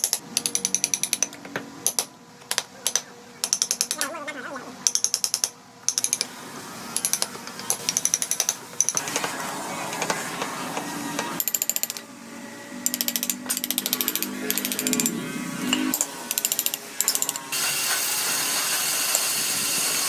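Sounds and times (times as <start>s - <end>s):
rapid mechanical clicking: 0.0s - 4.1s, 12.9s - 17.6s.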